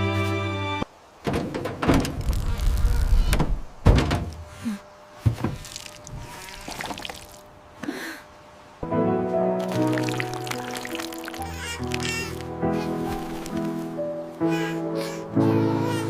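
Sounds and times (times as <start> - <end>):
knocks and thuds: 1.2 - 2.4, 3.3 - 4.4, 5.2 - 5.7.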